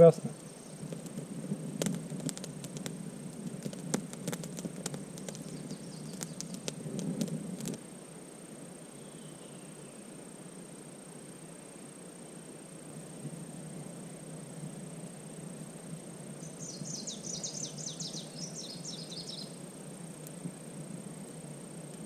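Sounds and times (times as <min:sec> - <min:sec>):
quiet forest background: 0:00.0 - 0:22.0
campfire crackling and popping: 0:00.6 - 0:07.8, 0:18.2 - 0:22.0.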